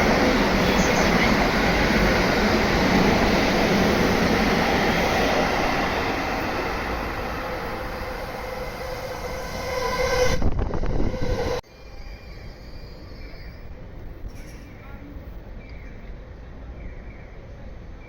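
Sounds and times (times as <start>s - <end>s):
train wheels on rails: 0.0s - 11.6s
multi-tone train whine: 0.0s - 18.0s
quiet station background: 0.0s - 18.0s.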